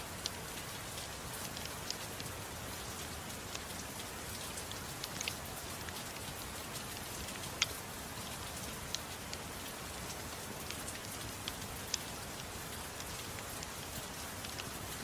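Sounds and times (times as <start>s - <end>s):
soft rain hiss: 0.0s - 15.0s
wood fire crackling: 3.1s - 6.4s, 7.2s - 15.0s.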